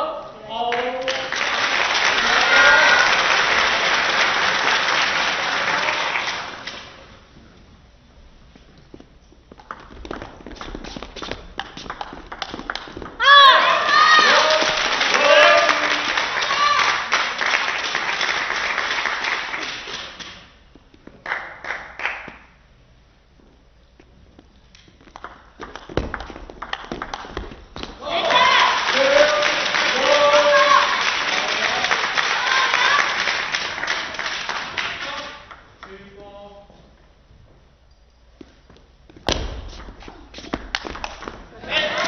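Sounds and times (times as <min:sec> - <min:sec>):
crowd applauding: 0:00.7 - 0:07.0, 0:11.9 - 0:20.2, 0:28.0 - 0:35.5
faint shouts: 0:02.2 - 0:03.2, 0:13.2 - 0:17.1, 0:28.0 - 0:31.1.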